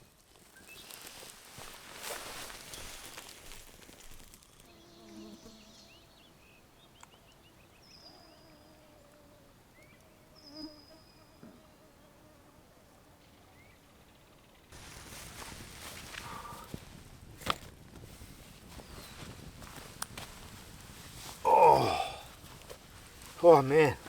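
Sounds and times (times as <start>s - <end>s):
rustle of movement: 0.2s - 4.7s, 14.8s - 24.0s
insect buzzing: 4.0s - 6.3s, 8.1s - 12.7s.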